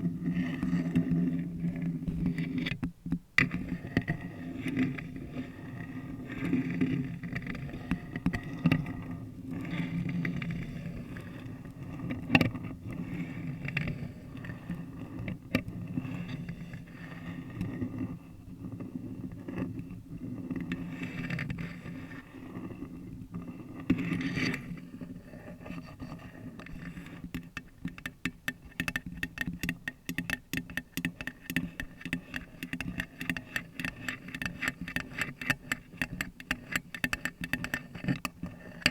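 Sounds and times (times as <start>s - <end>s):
nails scratching paper cup: 27.2s - 38.9s
fast nail tapping: 27.4s - 37.9s.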